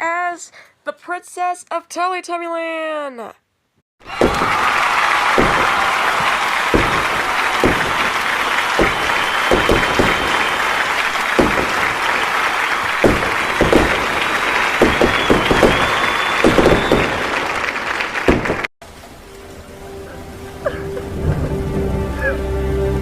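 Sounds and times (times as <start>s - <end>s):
crowd applauding and cheering: 4.0s - 18.7s
fireworks bangs: 4.0s - 18.7s.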